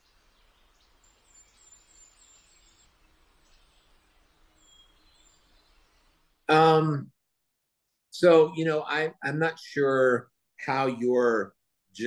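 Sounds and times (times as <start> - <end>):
high bird chirps: 0.0 - 6.2
faint hiss: 0.0 - 7.0.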